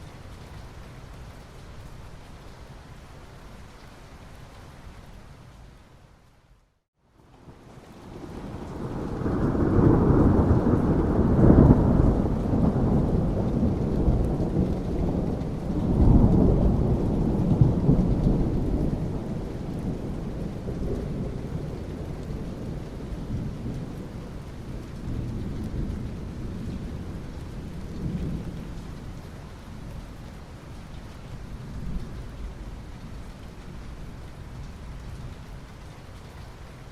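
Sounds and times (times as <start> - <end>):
steady rain: 0.0 - 36.9
thunder rumbling: 8.1 - 29.2.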